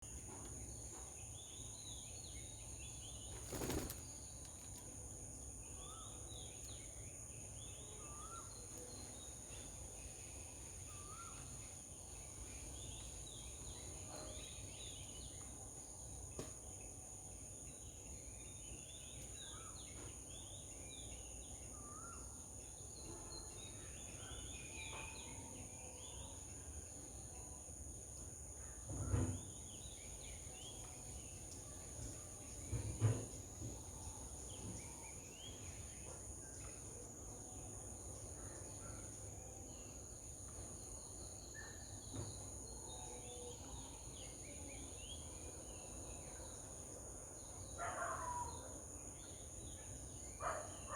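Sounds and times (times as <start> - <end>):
small birds chirping: 0.0 - 15.5.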